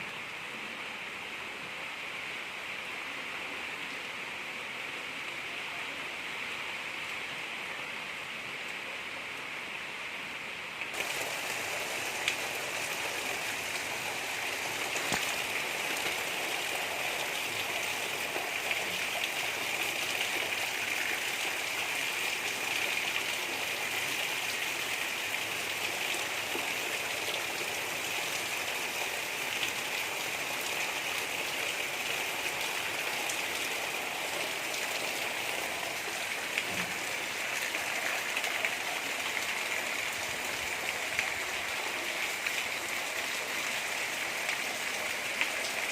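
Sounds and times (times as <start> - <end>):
steady rain hiss: 0.0 - 45.9
soft raindrop ticks: 15.0 - 15.4.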